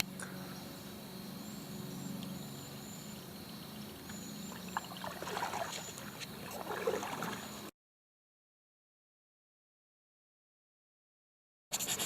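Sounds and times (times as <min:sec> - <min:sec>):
steady low hum: 0:00.0 - 0:07.7
paddle splashing in water: 0:04.5 - 0:07.7.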